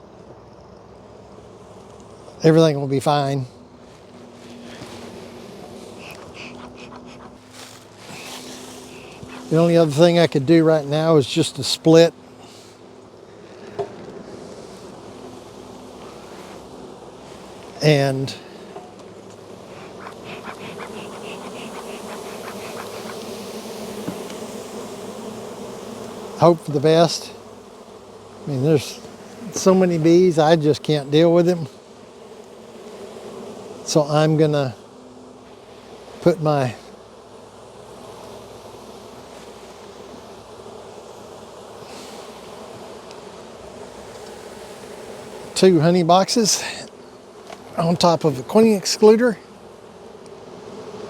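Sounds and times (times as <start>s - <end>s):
honey bees buzzing: 0.0s - 51.0s
soft rustle: 3.7s - 9.7s, 16.0s - 17.8s.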